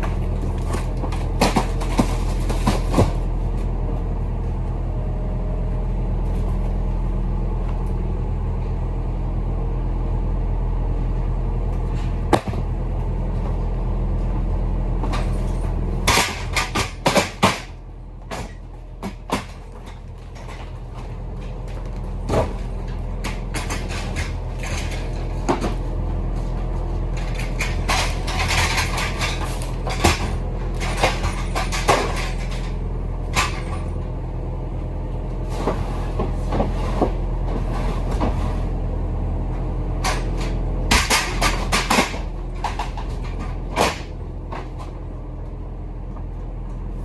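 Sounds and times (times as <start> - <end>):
truck engine droning: 0.0 - 47.0
sharp knocks and rattles: 15.0 - 34.1, 40.0 - 45.0.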